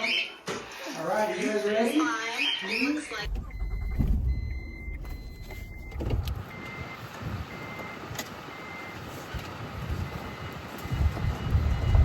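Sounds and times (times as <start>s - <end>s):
electronic beeping: 2.3s - 8.9s
low rumble: 3.2s - 6.3s.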